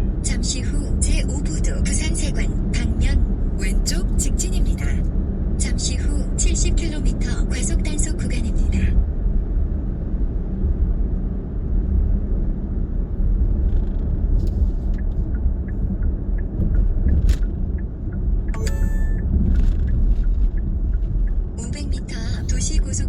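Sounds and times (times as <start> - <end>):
car driving cabin rumble: 13.2 - 18.5, 19.2 - 23.0
electronic tone: 18.6 - 19.3.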